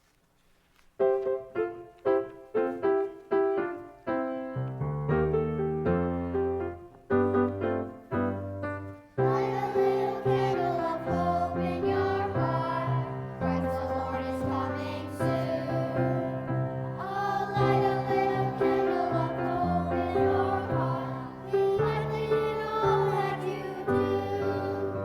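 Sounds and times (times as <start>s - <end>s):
piano chords: 1.0s - 25.0s
children's choir singing: 9.2s - 25.0s.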